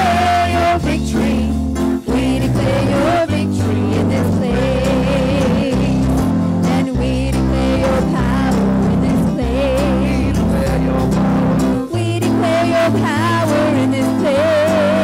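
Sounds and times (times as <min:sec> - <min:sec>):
church band sustained chords: 0:00.0 - 0:06.7.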